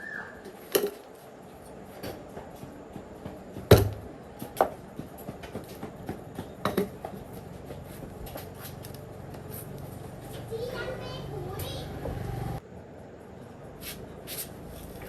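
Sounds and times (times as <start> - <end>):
metal tools knocking: 6.5 - 7.2.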